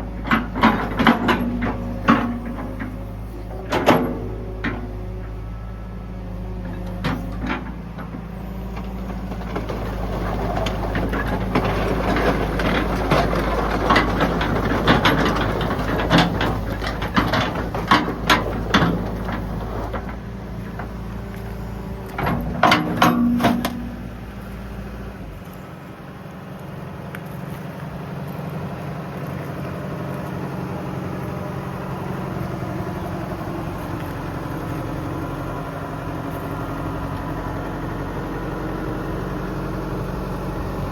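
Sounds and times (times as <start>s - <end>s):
excavator diesel engine running: 0.0s - 40.9s
sharp knocks and clanks: 0.2s - 4.9s, 9.4s - 20.2s, 22.2s - 24.1s.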